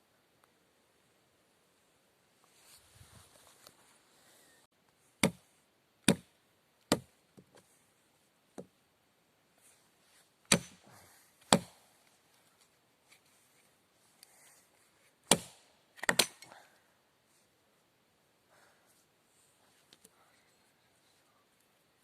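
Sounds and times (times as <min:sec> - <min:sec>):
axe chopping wood: 0:05.2 - 0:05.4, 0:06.1 - 0:06.3, 0:06.9 - 0:07.1, 0:10.5 - 0:11.8, 0:15.3 - 0:16.4.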